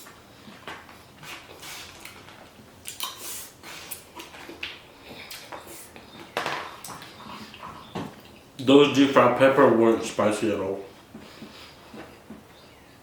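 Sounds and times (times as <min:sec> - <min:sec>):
person chewing: 0:01.2 - 0:06.1, 0:06.7 - 0:08.4.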